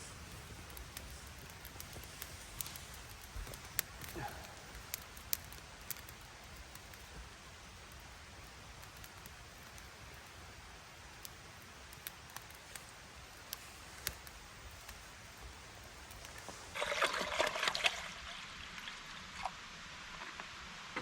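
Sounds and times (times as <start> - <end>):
water splashing: 16.7 - 19.6
water trickling: 16.7 - 20.2.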